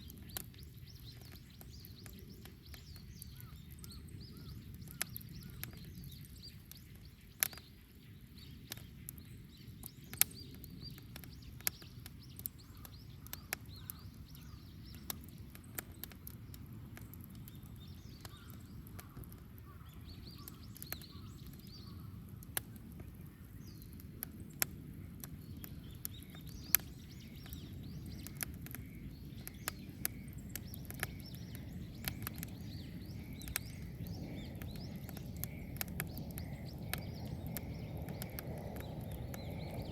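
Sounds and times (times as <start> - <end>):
bonfire crackling and popping: 0.0 - 39.9
faint birds chirping: 0.0 - 39.9.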